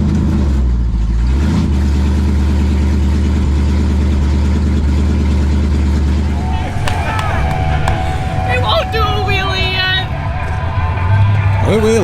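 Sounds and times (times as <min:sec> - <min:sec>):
car engine rumbling: 0:05.6 - 0:12.0.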